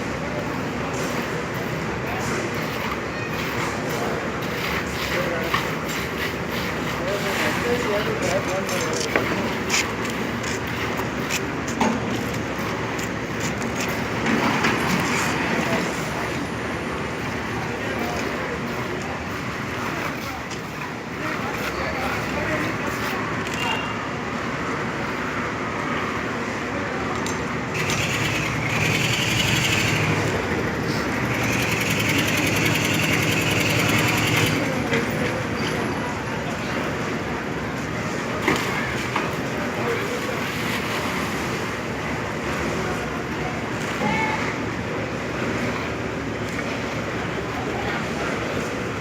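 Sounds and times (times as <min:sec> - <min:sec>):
steady mechanical noise: 0:00.0 - 0:49.0
power tool rattling: 0:27.8 - 0:34.9.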